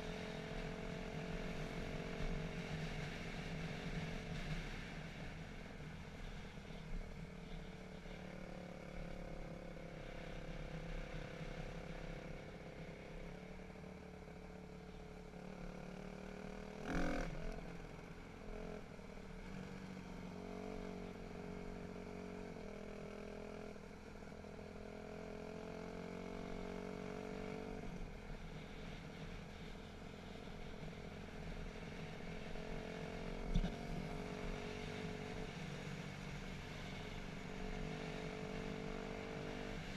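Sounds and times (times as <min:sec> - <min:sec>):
dirt bike engine revving: 0:16.8 - 0:17.5.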